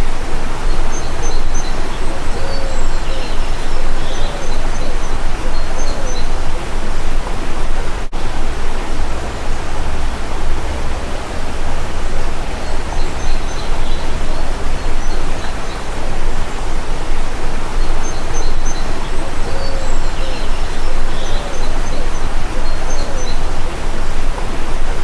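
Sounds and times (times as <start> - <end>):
faint high bird chirps: 0.6 - 6.6, 17.8 - 23.7.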